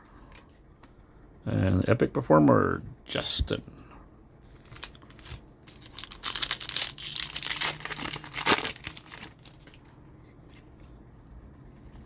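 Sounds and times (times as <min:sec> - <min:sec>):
foil wrapper tearing and crinkling: 0:04.6 - 0:09.9.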